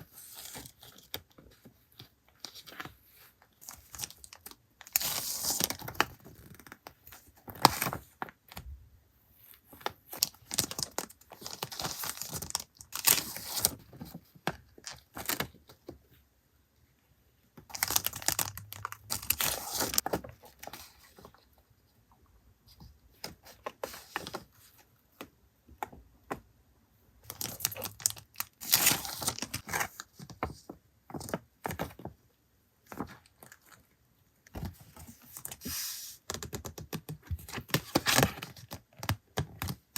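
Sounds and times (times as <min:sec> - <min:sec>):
packaging rustling and crinkling: 0:17.7 - 0:21.4.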